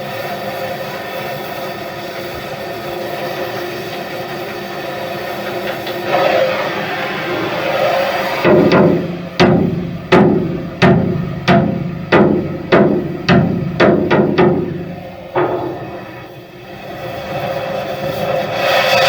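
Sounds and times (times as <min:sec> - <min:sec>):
machinery rumble: 0:05.4 - 0:18.6
hammer blows knocking: 0:08.4 - 0:16.4.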